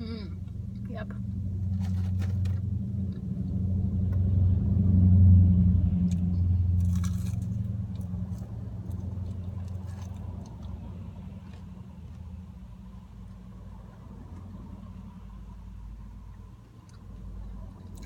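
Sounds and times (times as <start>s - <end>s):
vehicle engine humming: 0.0s - 18.0s
crunching bite of food: 6.1s - 11.8s
soft chewing clicks: 6.9s - 12.3s, 16.2s - 18.0s.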